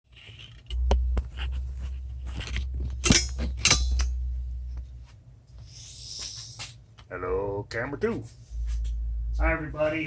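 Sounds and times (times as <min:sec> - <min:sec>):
microphone handling rumble: 0:08.5 - 0:10.0.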